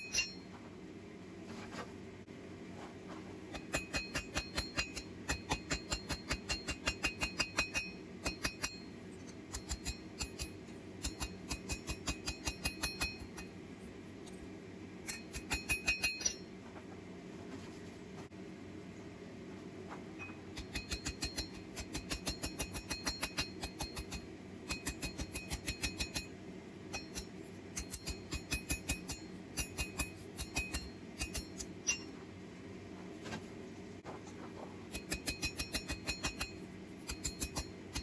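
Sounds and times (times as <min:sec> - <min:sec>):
hammer striking steel on anvil: 0:00.0 - 0:00.5, 0:03.5 - 0:13.6, 0:15.0 - 0:16.5, 0:20.2 - 0:32.2, 0:34.9 - 0:38.0
steady hum: 0:00.0 - 0:38.0.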